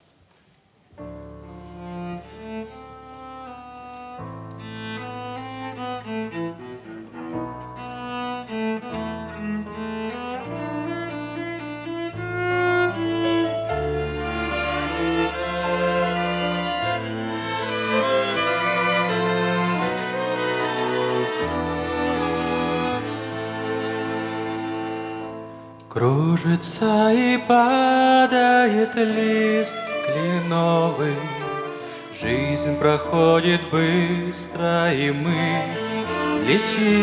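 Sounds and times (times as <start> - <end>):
string orchestra melody: 1.0 - 37.0.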